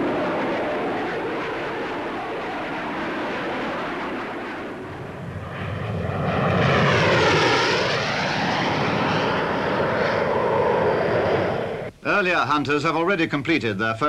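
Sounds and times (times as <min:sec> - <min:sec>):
jet flying past: 0:00.0 - 0:11.9.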